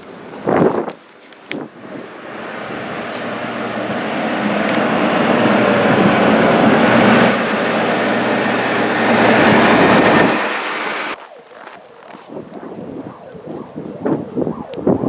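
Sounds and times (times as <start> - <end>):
loud dense rushing noise: 1.8 - 11.2
low engine drone: 1.8 - 11.2.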